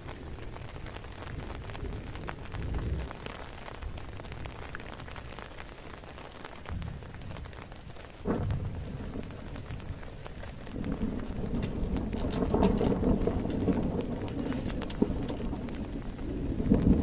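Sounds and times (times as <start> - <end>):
heavy rain falling: 0.0 - 17.0
low rumbles: 6.6 - 17.0.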